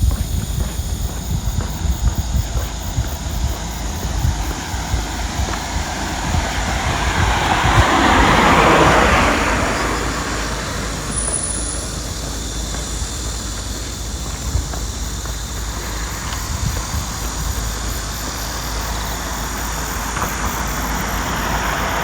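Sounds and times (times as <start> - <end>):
footsteps on walkway: 0.0 - 22.0
vehicle passing by: 2.7 - 13.4, 15.6 - 22.0.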